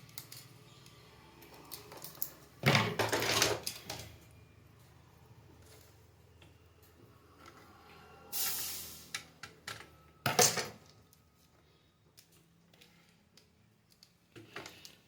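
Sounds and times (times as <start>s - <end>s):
tools clattering: 1.7s - 4.2s.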